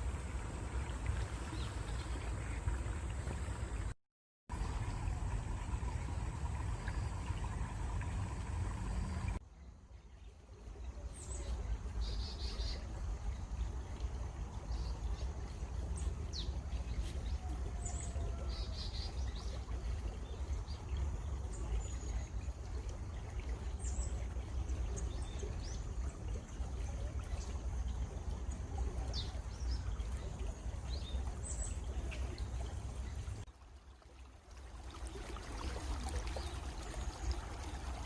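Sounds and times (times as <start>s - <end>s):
stream water running: 0.0s - 38.0s.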